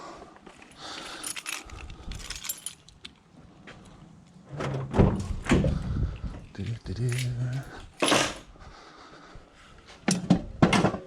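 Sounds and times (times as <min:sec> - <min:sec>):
scrap metal clinking and rattling: 0:00.5 - 0:03.2, 0:06.6 - 0:08.5.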